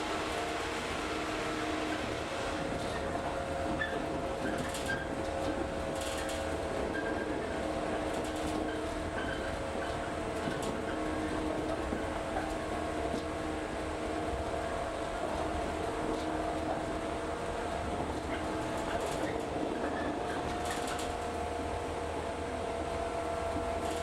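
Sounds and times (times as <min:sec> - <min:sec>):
train running noise with hum: 0:00.0 - 0:24.0.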